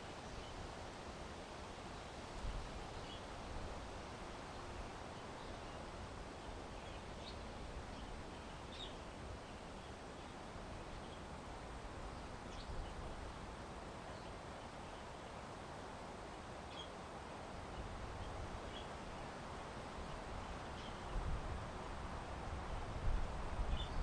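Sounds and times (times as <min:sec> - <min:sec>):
wind: 0:00.0 - 0:24.0.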